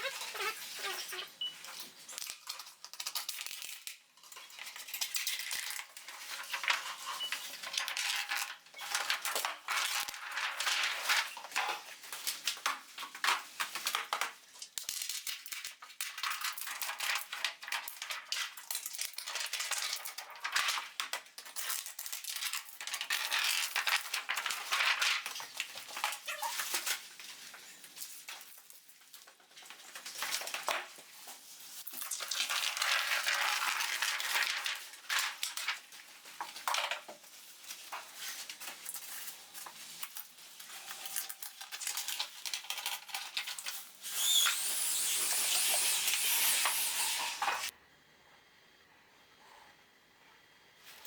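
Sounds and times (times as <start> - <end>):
plastic film crackling: 21.8 - 45.1.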